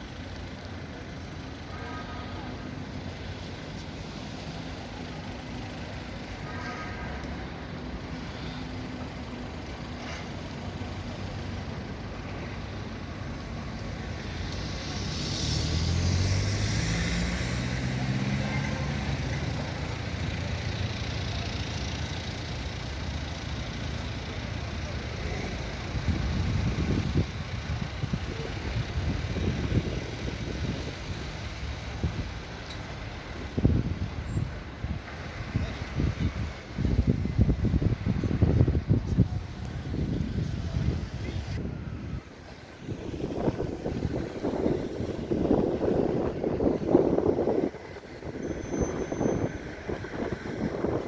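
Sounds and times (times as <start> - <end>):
traffic background rumble: 0.0 - 51.0
vehicle engine passing: 14.1 - 32.3
wind buffeting microphone: 25.3 - 32.5, 33.3 - 51.0.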